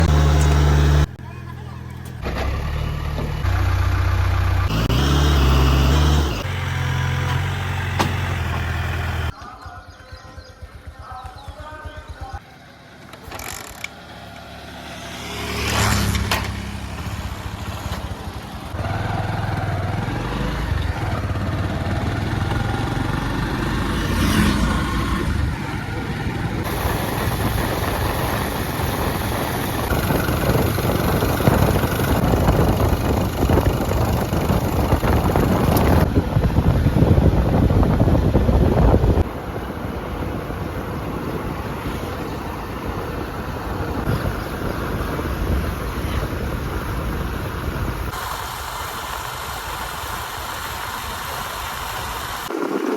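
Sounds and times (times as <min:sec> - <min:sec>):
backhoe diesel engine running: 0:00.0 - 0:09.3.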